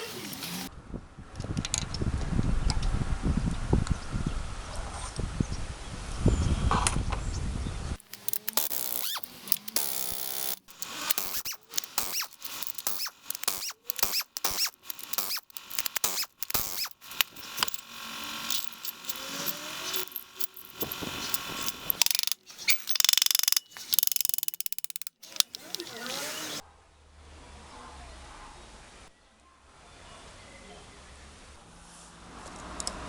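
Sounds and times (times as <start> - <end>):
metallic clinks: 8.0 - 25.9
short clicks: 8.0 - 26.6
squeaks: 8.0 - 26.6.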